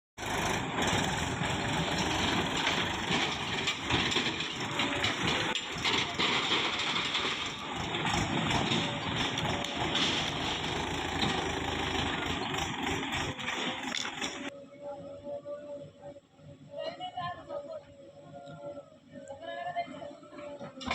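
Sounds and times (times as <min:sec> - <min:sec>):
heavy diesel engine running: 0:00.2 - 0:14.5.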